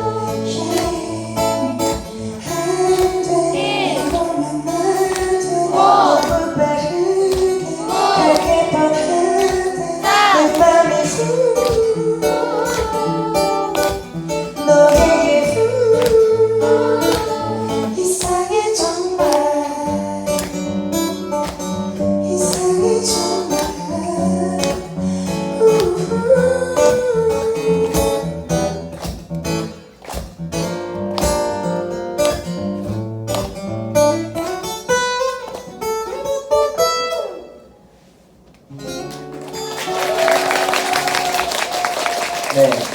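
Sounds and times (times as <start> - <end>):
acoustic guitar song: 0.0 - 41.8
audience applauding: 39.2 - 42.9.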